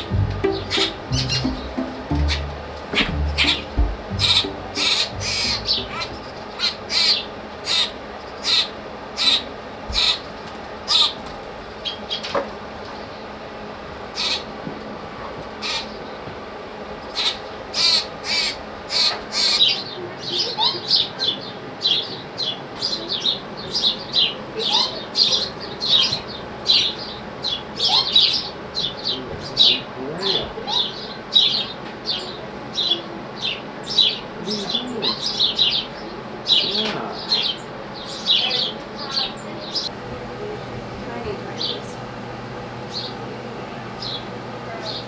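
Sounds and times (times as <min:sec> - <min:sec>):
baby birds chirping: 0:00.0 - 0:10.3, 0:17.0 - 0:39.9, 0:41.6 - 0:41.9, 0:44.0 - 0:45.0.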